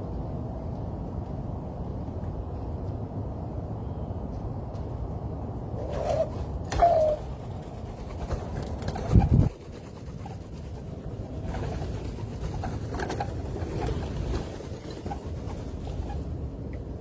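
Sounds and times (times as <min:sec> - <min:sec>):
doves cooing: 0:05.9 - 0:16.3.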